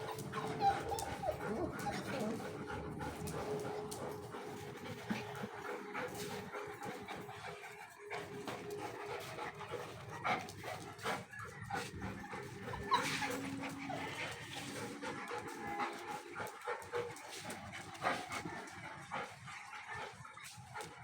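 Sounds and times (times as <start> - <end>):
puppies whimpering and yipping: 0.0 - 4.4, 11.2 - 17.0.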